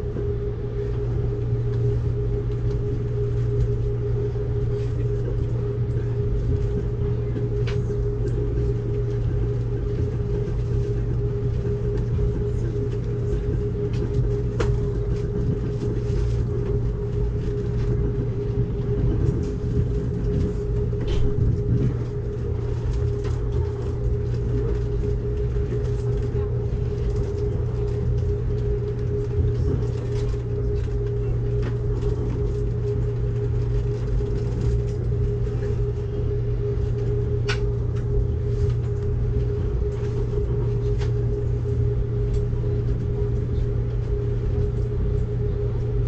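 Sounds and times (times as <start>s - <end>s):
train rumble inside coach: 0.0s - 46.0s.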